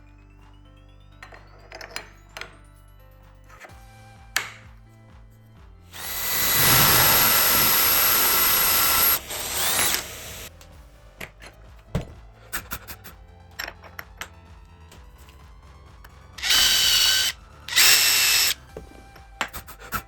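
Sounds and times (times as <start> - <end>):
power tool motor whining: 6.0 - 10.5, 16.4 - 18.6.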